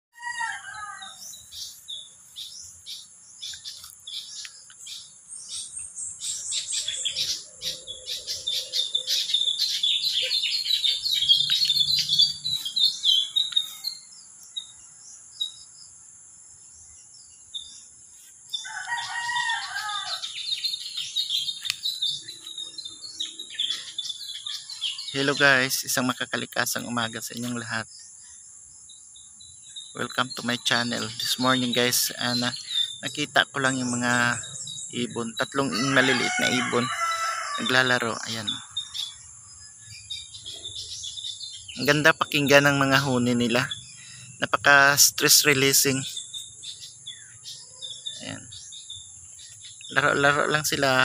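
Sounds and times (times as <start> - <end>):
lower falling bird call: 0.2 - 14.8, 17.6 - 27.7, 29.9 - 39.2
small birds chirping: 0.2 - 51.0.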